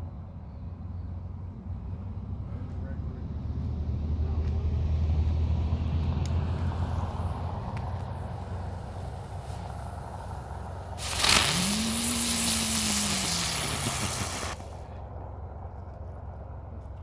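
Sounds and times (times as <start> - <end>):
low steady rumble: 0.0 - 17.0
firework fountain hissing: 6.7 - 14.8.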